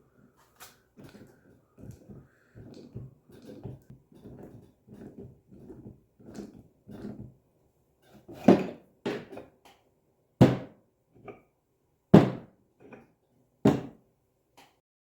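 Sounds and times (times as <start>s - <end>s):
soft scraping of metal parts: 0.2s - 7.3s.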